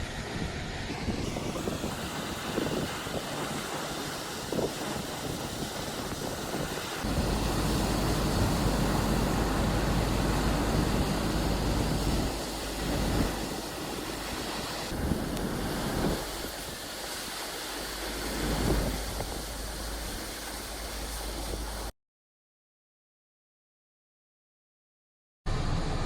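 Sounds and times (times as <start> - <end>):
wind buffeting microphone: 0.0 - 16.9, 18.1 - 21.9
ocean surf: 0.0 - 21.9.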